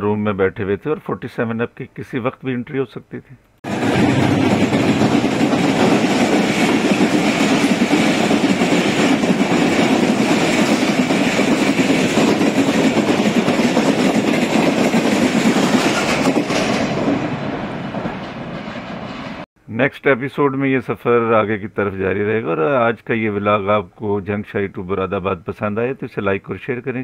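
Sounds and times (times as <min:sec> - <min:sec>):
train wheels rushing on rails: 0:03.7 - 0:19.5.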